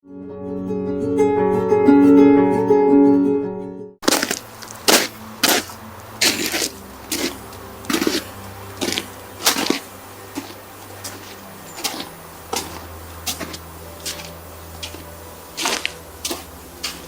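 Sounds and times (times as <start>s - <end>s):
footsteps crunching through snow: 4.0s - 17.0s.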